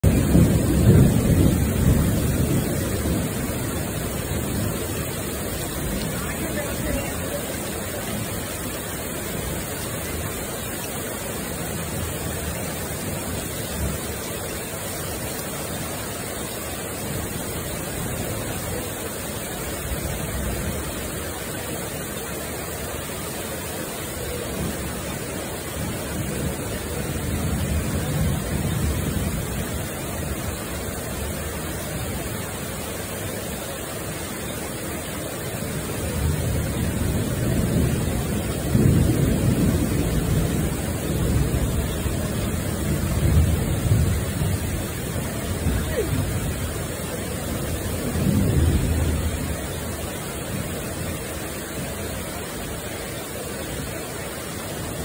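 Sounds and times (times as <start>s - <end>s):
low thunder rumble: 0.0s - 10.4s, 36.1s - 50.8s
heavy rain falling: 0.0s - 55.0s.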